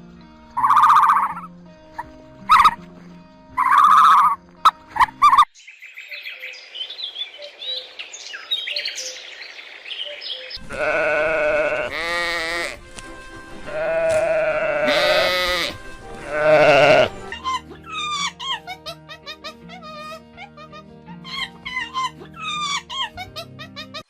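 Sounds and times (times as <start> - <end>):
small birds chirping: 0.5 - 2.8, 3.5 - 10.6
livestock bleating: 10.6 - 12.8, 13.7 - 17.4.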